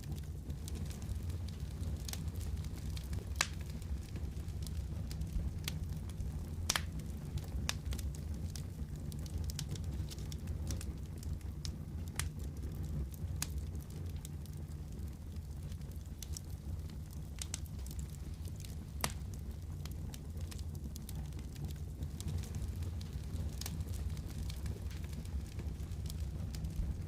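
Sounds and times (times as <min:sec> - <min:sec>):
low fire rumble: 0:00.0 - 0:27.0
wood fire crackling and popping: 0:00.0 - 0:27.0.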